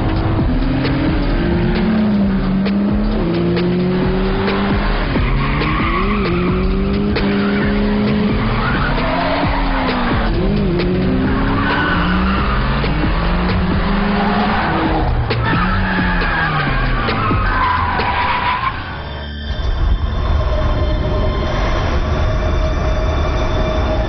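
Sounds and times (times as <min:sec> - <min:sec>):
car engines revving hard: 0:00.0 - 0:19.2
tyres squealing: 0:00.1 - 0:19.6.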